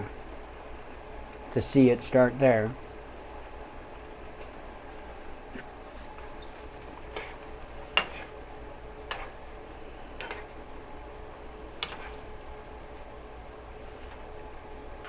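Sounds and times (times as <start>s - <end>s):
faint steady hum: 0.0s - 15.0s
utensil scraping a pan: 5.8s - 8.5s, 9.1s - 10.6s, 11.8s - 12.6s.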